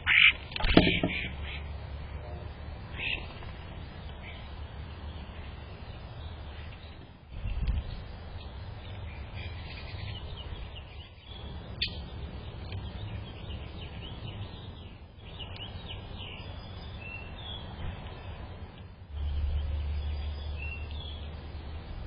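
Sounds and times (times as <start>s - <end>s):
small birds chirping: 0.0s - 2.0s, 2.8s - 22.0s.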